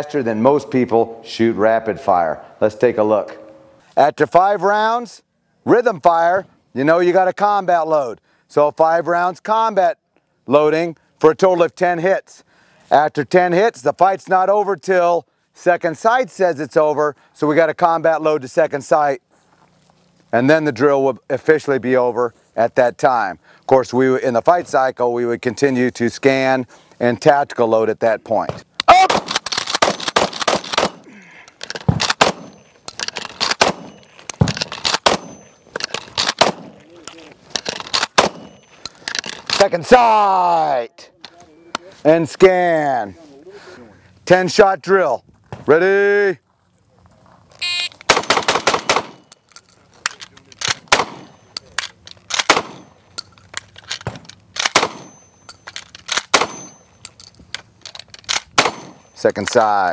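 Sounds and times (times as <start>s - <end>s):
shotgun firing: 29.0s - 31.1s, 31.9s - 32.6s, 33.6s - 34.0s, 35.0s - 35.4s, 36.2s - 36.8s, 38.1s - 38.6s, 48.1s - 49.3s, 50.8s - 51.4s, 52.3s - 52.9s, 54.6s - 55.2s, 56.3s - 56.8s, 58.6s - 59.0s
shotgun reloading clicks: 29.1s - 36.8s, 37.5s - 39.7s, 48.0s - 59.1s.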